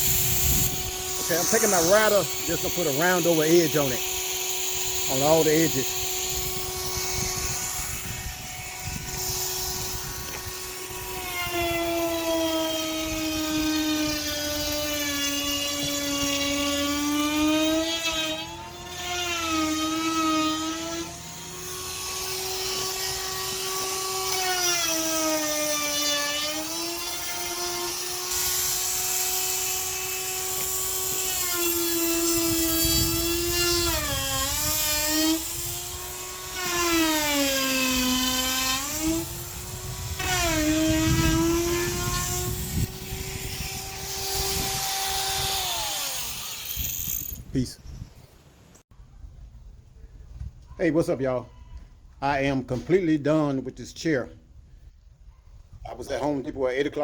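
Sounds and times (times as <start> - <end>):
electric router whining: 0.0 - 47.3.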